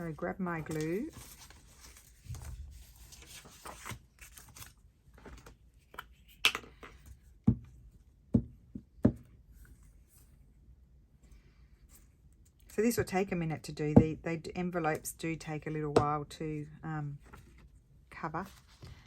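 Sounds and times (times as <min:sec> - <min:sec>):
paper rustling: 0:00.0 - 0:05.6.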